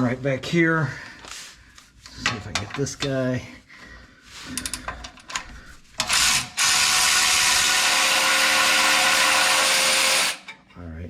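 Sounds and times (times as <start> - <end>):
electric ratchet running: 6.0 - 10.4.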